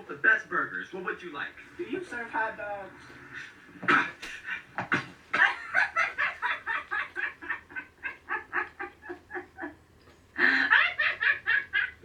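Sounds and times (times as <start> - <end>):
high-pitched cackling laughter: 4.9 - 9.8, 10.4 - 12.0.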